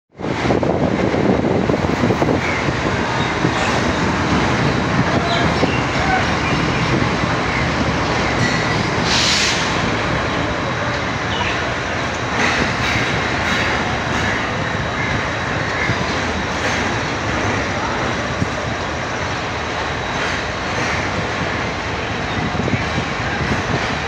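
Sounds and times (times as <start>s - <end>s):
train wheels rumbling on rails: 0.1s - 24.0s
burst of hiss: 9.0s - 9.8s.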